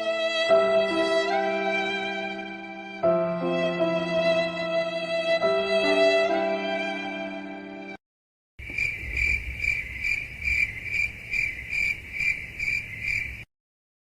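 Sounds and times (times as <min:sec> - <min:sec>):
sad violin phrase: 0:00.0 - 0:08.0
crickets chirping: 0:08.6 - 0:13.5.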